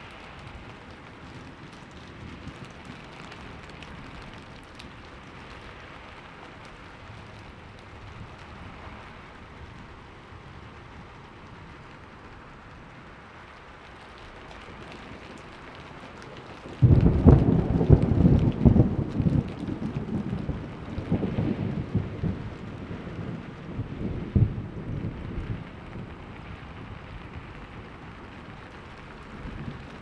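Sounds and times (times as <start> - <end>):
steady rain falling: 0.0 - 30.0
thunder crack and rumble: 14.2 - 30.0.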